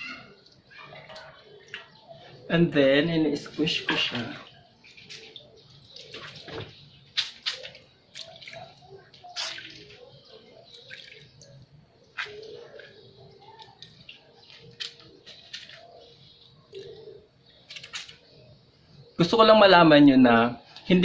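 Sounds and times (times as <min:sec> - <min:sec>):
hair squelching: 0:03.4 - 0:17.0
water splashing: 0:03.5 - 0:13.0.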